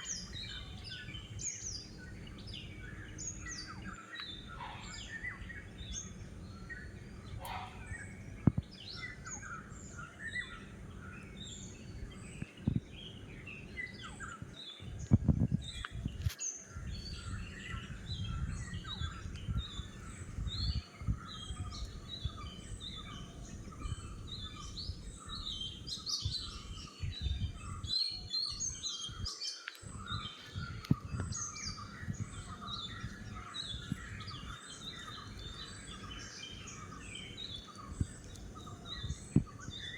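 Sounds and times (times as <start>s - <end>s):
low background rumble: 0.0s - 28.0s
small birds chirping: 0.0s - 39.9s.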